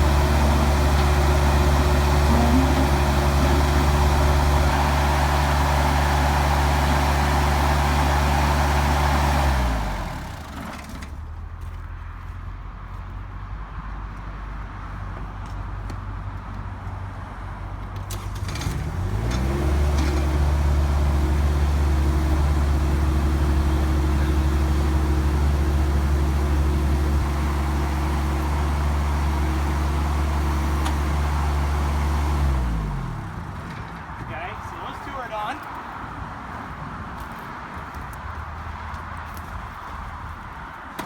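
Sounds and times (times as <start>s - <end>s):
diesel tractor engine revving: 0.0s - 11.2s, 18.1s - 35.7s.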